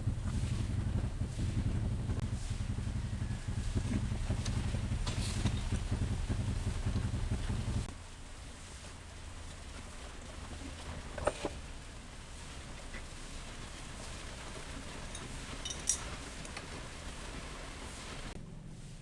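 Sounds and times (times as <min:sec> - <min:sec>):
motorcycle engine pulsing: 0:00.0 - 0:07.9.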